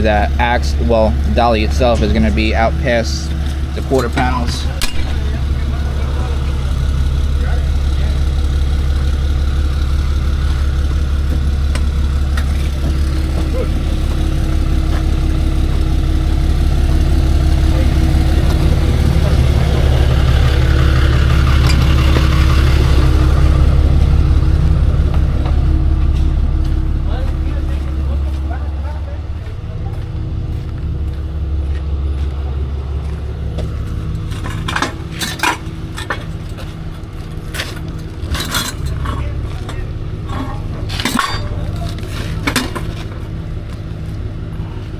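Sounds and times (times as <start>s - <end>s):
vehicle engine idling: 0.0s - 44.9s
metallic clinks and clanks: 34.2s - 43.2s.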